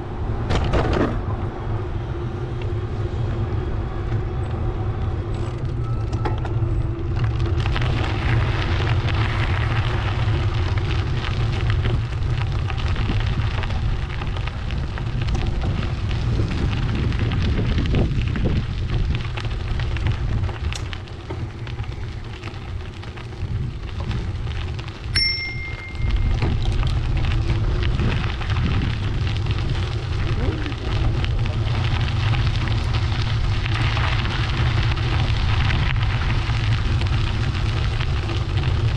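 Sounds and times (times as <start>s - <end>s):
bicycle ride noise: 0.0s - 38.9s
wind buffeting microphone: 0.0s - 38.9s
short high tone: 25.2s - 26.4s.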